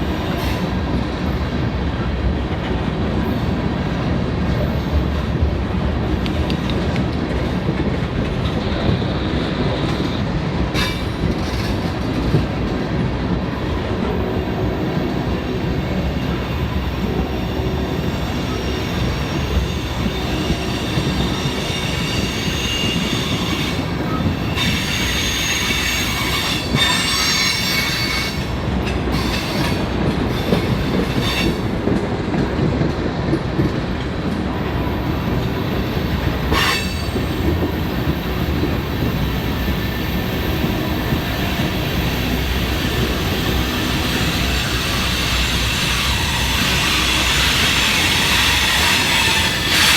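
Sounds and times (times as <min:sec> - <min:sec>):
train cars rumbling on rails: 0:00.0 - 0:49.9
train wheel squeals: 0:08.6 - 0:12.4, 0:14.6 - 0:31.8, 0:34.9 - 0:49.9.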